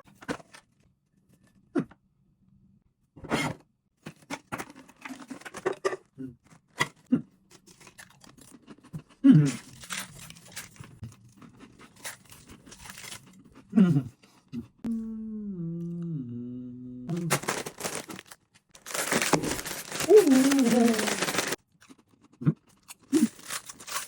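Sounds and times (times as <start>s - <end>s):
packaging crinkling and tearing: 9.6s - 10.9s, 11.7s - 13.4s, 17.1s - 21.6s, 22.9s - 24.0s
short falling moan: 14.9s - 17.2s.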